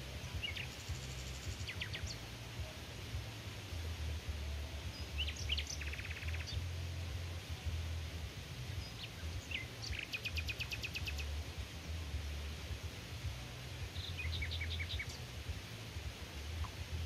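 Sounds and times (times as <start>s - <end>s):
low rumble: 0.0s - 9.9s
songbird trilling: 0.2s - 2.4s, 4.8s - 6.9s, 8.7s - 11.4s, 13.8s - 15.4s.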